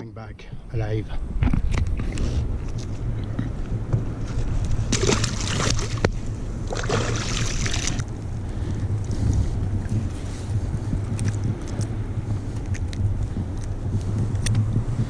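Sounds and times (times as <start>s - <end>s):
low rumble: 0.0s - 15.0s
water splashing against kayak: 4.3s - 8.1s.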